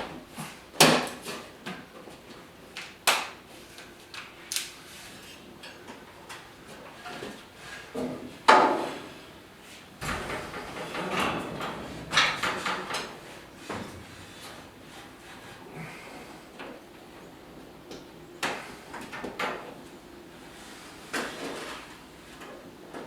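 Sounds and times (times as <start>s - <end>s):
knocks and clicks: 10.0s - 14.1s
clattering: 10.0s - 14.8s.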